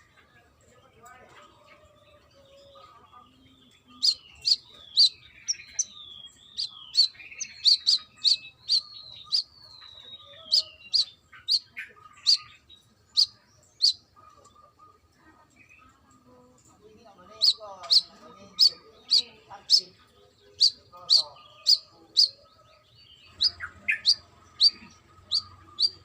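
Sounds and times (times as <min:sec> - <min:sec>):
sunbird singing sharp chips: 0:03.9 - 0:14.0, 0:17.3 - 0:22.4, 0:23.2 - 0:26.0.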